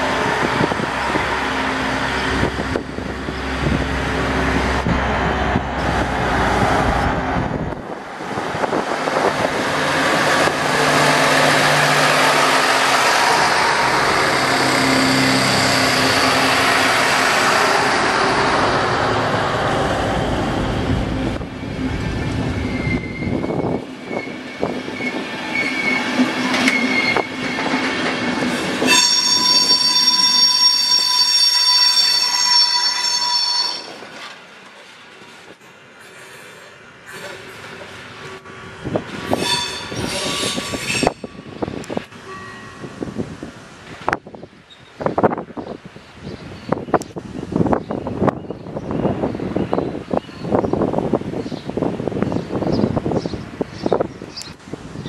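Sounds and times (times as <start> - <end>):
diesel railcar engine humming: 0.0 - 55.0
high wheel squeal: 12.2 - 18.0, 21.5 - 27.6, 28.8 - 34.0, 39.3 - 41.4.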